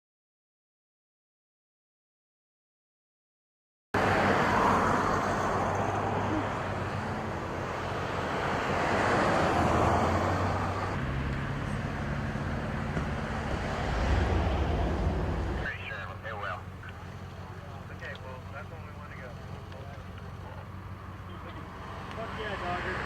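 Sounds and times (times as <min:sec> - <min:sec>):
low engine hum: 0:04.0 - 0:23.0
broad rushing sound: 0:12.6 - 0:15.8.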